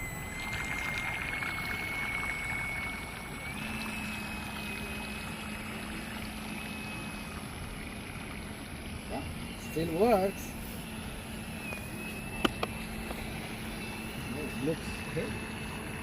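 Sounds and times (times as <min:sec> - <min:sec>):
electric motor whining: 0:00.0 - 0:16.0
water rushing along hull: 0:00.0 - 0:16.0.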